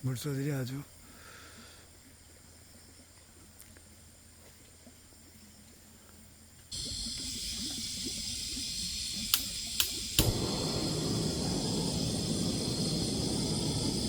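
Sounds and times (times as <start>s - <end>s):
insects trilling: 0.0s - 14.0s
sharp clicks: 8.9s - 10.5s.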